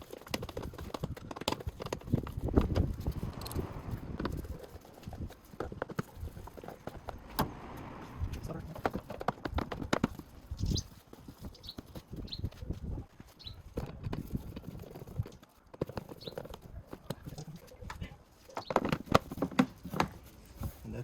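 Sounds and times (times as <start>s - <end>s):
tools and plastic parts knocking: 0.0s - 7.3s, 8.7s - 10.5s, 13.7s - 20.7s.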